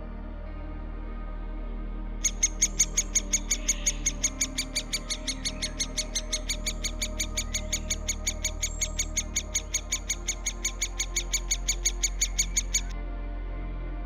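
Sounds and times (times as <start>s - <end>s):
bird calling high notes: 2.2s - 12.9s.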